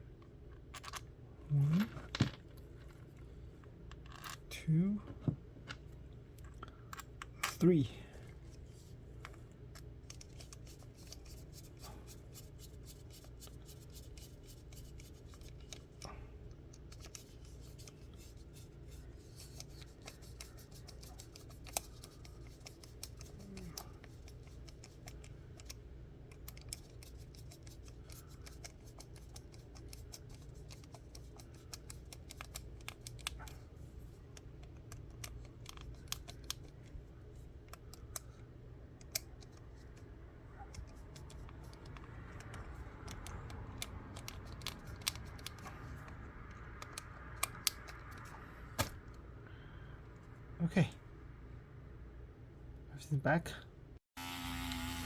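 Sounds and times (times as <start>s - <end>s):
steady low hum: 0.0s - 55.0s
small pump parts clicking: 9.2s - 38.4s, 40.7s - 49.0s.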